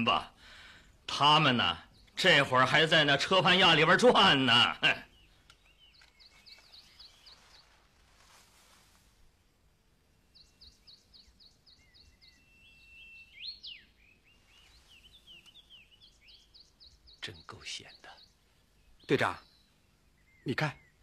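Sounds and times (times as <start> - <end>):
small bird chirping: 4.2 - 9.1, 10.1 - 21.0
bird whistle: 11.8 - 13.9.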